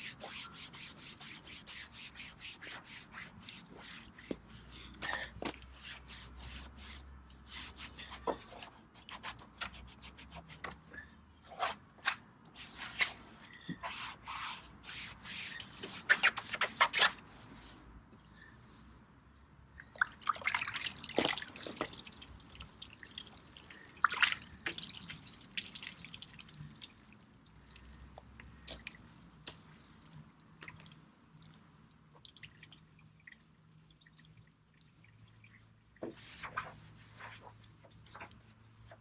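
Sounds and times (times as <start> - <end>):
water dripping: 19.8 - 36.0
water splashing: 20.0 - 27.6.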